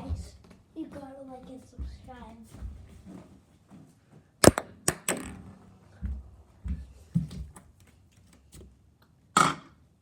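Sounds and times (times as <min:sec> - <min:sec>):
small ball bouncing: 0:04.4 - 0:07.5.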